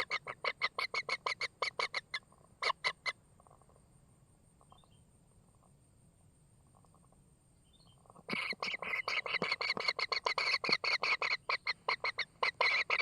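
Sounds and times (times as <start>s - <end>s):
kingfisher calling: 8.3s - 13.0s.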